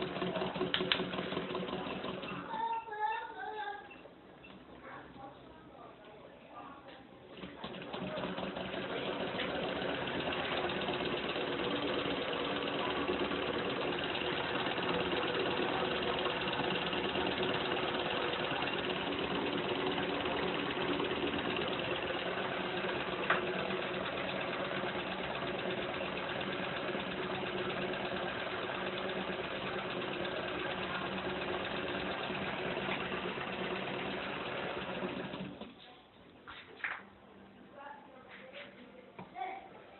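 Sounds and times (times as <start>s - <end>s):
engine whirring and humming: 8.4s - 35.7s.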